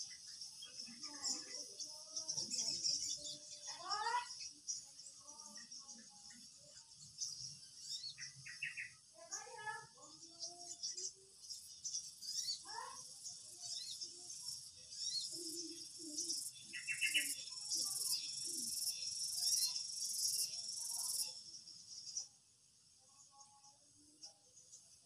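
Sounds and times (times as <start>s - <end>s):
birds chirping: 0.0s - 22.4s
high insect trill: 9.2s - 24.0s
fast pulsing insect chirp: 10.4s - 23.7s.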